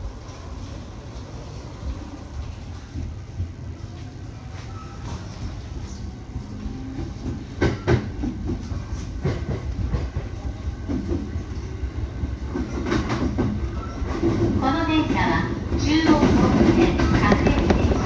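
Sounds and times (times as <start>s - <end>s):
train rumble: 0.0s - 18.0s
wheels clacking over rail joints: 16.1s - 18.0s.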